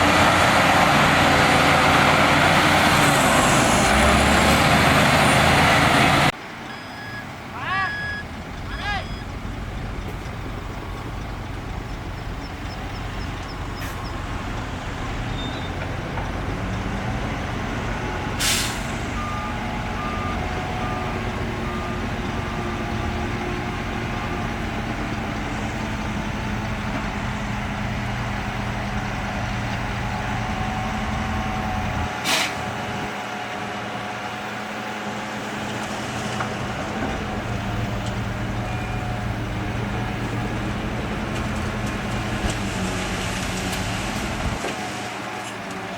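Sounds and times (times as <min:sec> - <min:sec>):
diesel truck engine running: 0:00.0 - 0:45.9
faint reversing beeps: 0:06.6 - 0:15.8, 0:38.6 - 0:39.4
air brake hisses: 0:18.4 - 0:19.2, 0:32.2 - 0:32.7.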